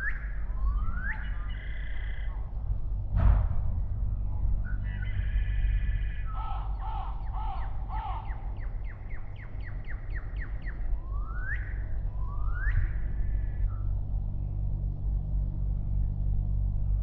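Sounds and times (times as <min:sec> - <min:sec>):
rising whistled bird notes: 0:00.0 - 0:02.6, 0:04.6 - 0:14.0
low rumble: 0:00.0 - 0:17.0
crow cawing: 0:04.9 - 0:08.6.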